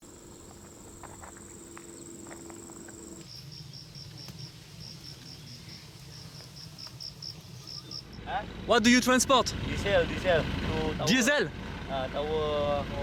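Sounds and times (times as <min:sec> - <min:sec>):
cricket-like chirping: 0:00.0 - 0:08.3
insect high trill: 0:00.0 - 0:08.3.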